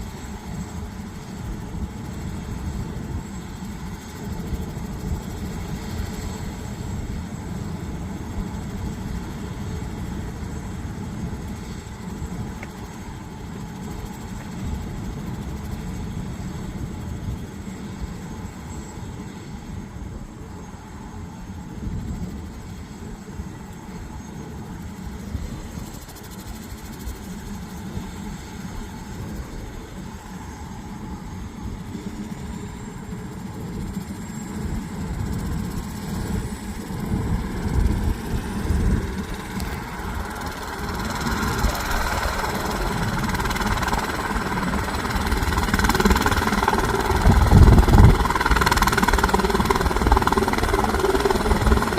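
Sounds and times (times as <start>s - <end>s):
helicopter rotor fluttering rumble: 0.0s - 51.9s
high whine: 36.6s - 51.9s.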